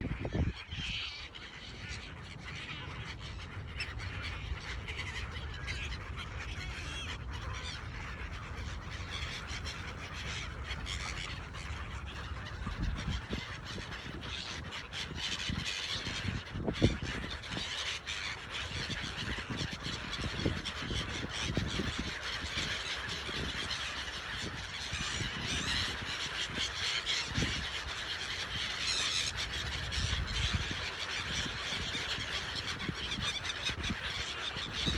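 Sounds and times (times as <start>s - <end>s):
gulls squawking and crying: 0.0s - 34.9s.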